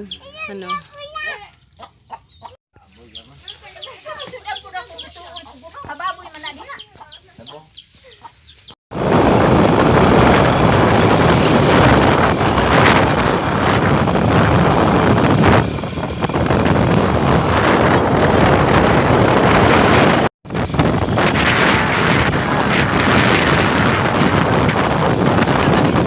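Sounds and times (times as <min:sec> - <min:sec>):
wind buffeting microphone: 0:08.9 - 0:26.0
vehicle rumble: 0:09.0 - 0:26.0.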